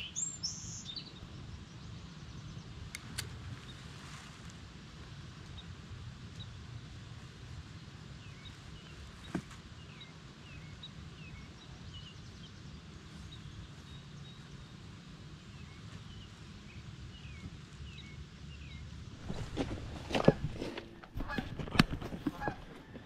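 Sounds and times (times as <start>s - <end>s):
small bird chirping: 0.0s - 1.2s.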